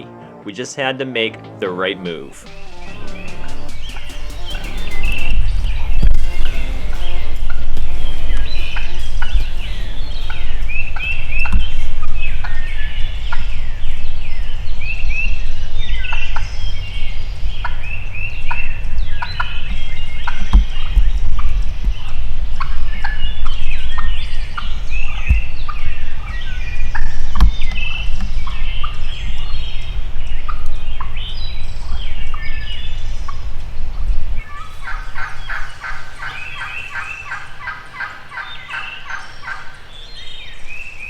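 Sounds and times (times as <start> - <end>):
turkeys gobbling and calling: 1.7 - 41.0
quick repeated turkey calls: 2.4 - 5.3, 34.4 - 40.2
wind rumbling on microphone: 3.1 - 41.0.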